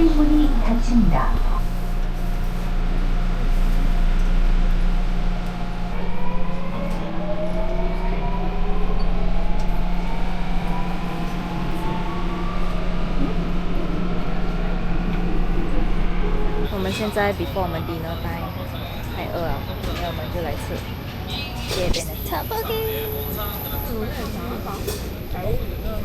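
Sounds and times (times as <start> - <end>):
train traction motor whine: 0.0 - 26.0.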